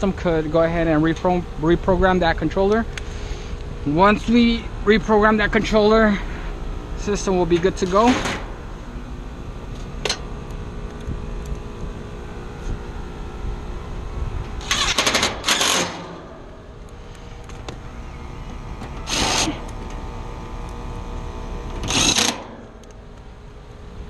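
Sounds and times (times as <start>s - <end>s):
heat pump unit humming: 0.0s - 24.0s
loud scraping noises: 14.6s - 16.4s, 17.0s - 19.9s.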